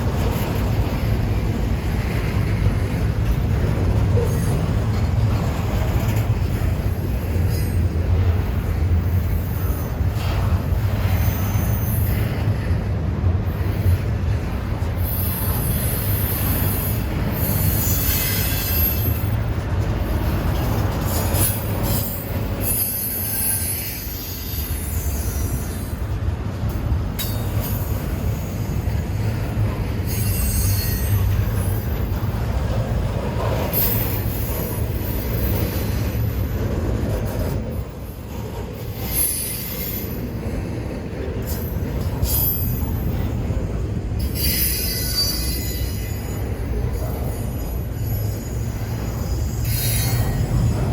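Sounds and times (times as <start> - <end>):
train rumbling on rails: 0.0 - 50.9
high-pitched wheel squeal: 21.2 - 26.0, 30.1 - 31.3, 44.2 - 46.6, 47.5 - 50.7.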